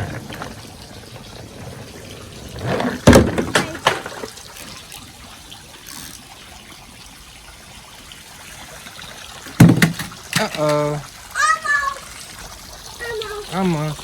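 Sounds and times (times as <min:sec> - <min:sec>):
toy vehicle splashing into water: 0:00.0 - 0:06.5, 0:09.0 - 0:14.0
sprinkler water hissing: 0:04.2 - 0:14.0
quick knocks: 0:09.5 - 0:10.5.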